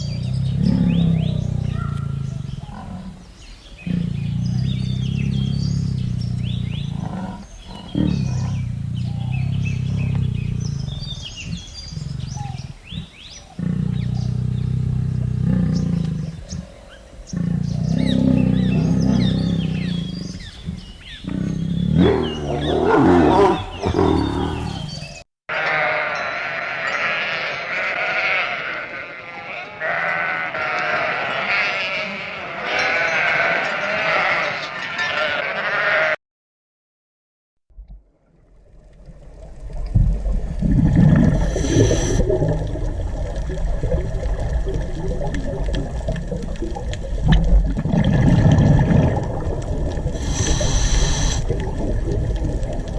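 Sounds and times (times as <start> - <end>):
bird chirps: 3.4 - 14.4
animal calls: 3.8 - 14.5, 17.3 - 36.2
steady low rumble: 4.2 - 13.0
sheep bleating: 6.9 - 7.5, 25.5 - 36.2.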